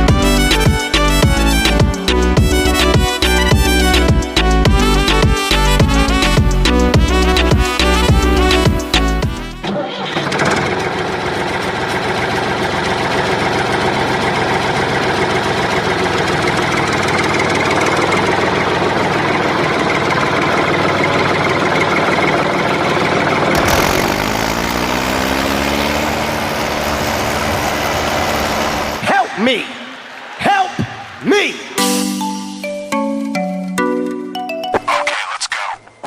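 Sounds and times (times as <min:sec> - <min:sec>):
motor running with rough hum: 0:10.3 - 0:29.0
rising motor whine: 0:23.5 - 0:29.0.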